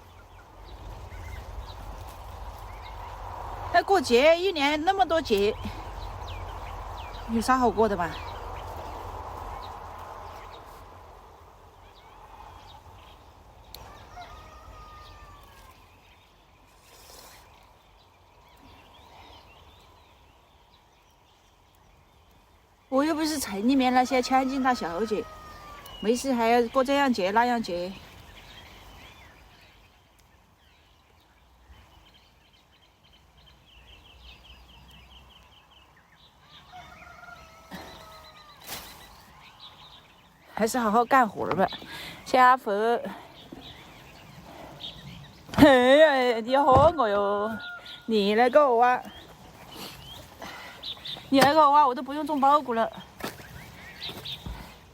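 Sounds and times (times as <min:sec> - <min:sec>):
birds calling: 0:00.0 - 0:54.9
long falling bird call: 0:23.0 - 0:30.9, 0:43.2 - 0:54.6.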